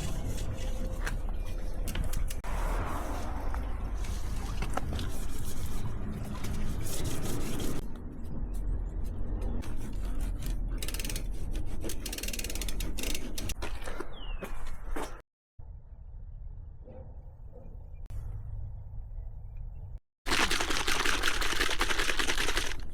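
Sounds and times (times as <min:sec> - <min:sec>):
scrubbing a bicycle: 0:02.4 - 0:07.8
bicycle mechanical clicking: 0:10.4 - 0:13.6.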